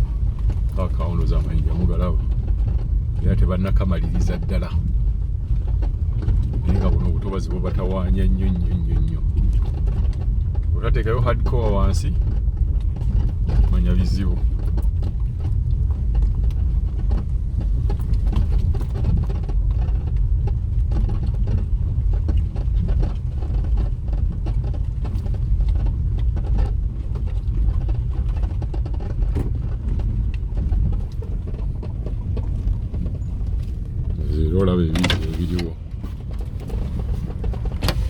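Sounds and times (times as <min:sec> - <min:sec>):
car driving over rough road: 0:00.0 - 0:38.0.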